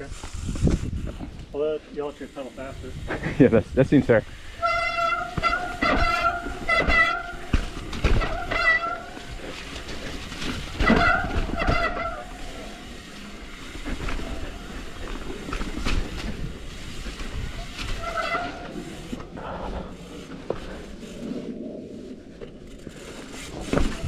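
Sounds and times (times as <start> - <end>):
bike rattling on rough trail: 0.0 - 24.0
bike disc brakes squealing: 4.4 - 16.3, 17.4 - 19.2.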